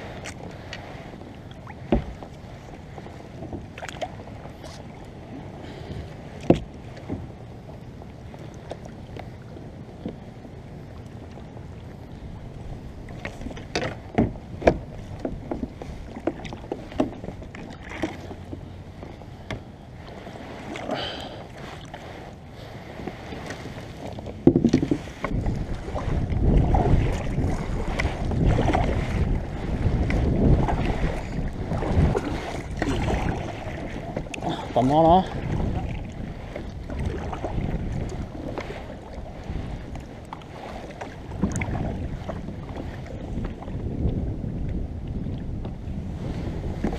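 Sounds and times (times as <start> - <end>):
paddle strokes in water: 0.0 - 46.9
wind buffeting microphone: 0.0 - 46.9
knocks against kayak hull: 1.9 - 2.2, 6.4 - 7.2, 13.6 - 17.3, 24.4 - 25.6.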